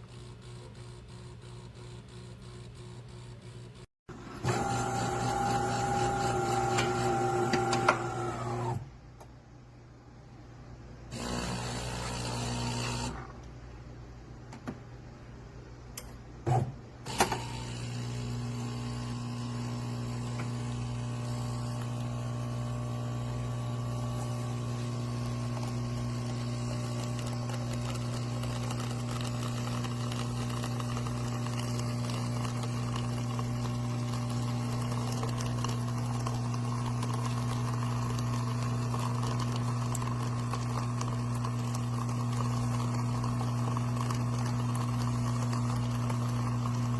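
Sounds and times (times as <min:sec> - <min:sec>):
water pump humming: 0:04.4 - 0:08.8, 0:11.1 - 0:13.4, 0:17.1 - 0:46.9.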